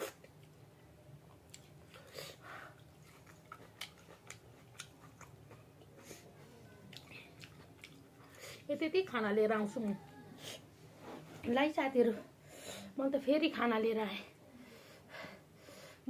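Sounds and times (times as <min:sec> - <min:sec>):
faint chewing: 0:01.2 - 0:08.7.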